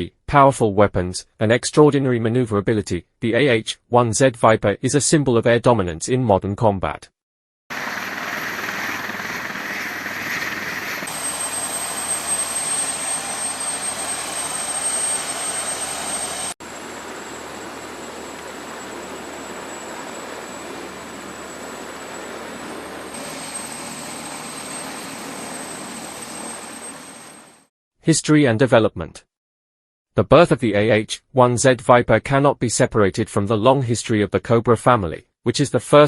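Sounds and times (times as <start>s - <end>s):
helicopter rotor and turbine noise: 7.7s - 27.7s
thin high whine: 7.8s - 27.7s.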